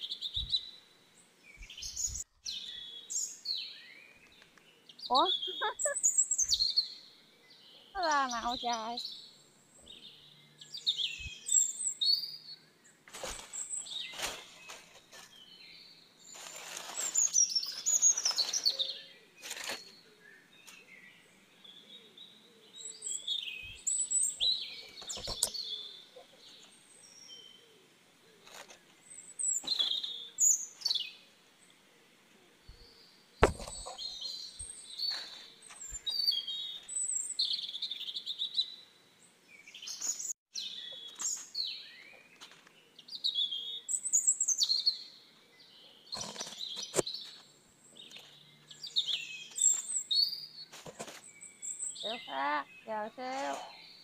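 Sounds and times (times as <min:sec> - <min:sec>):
small birds chirping: 0:00.0 - 0:54.0
sharp knock: 0:33.4 - 0:33.8.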